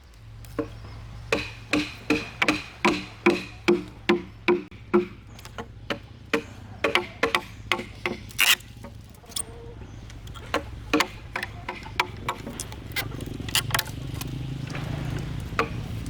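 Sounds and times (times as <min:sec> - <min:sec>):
tool knocking on timber: 0:01.4 - 0:09.0.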